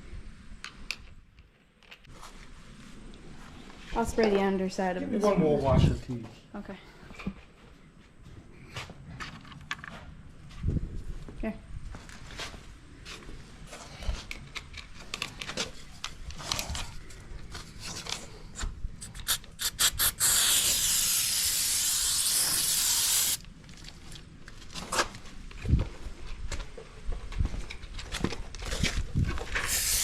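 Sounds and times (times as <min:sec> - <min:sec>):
aerosol spray can hissing: 0:19.0 - 0:23.4, 0:29.6 - 0:30.0.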